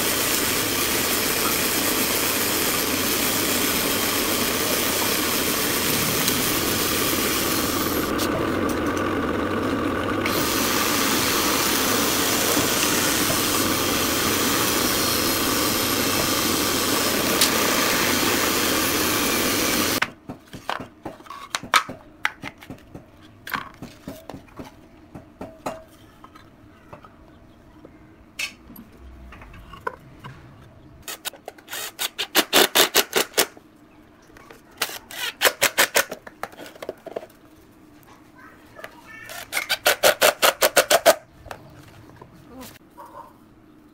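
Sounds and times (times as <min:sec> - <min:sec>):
drill press boring into wood: 0:00.0 - 0:20.0.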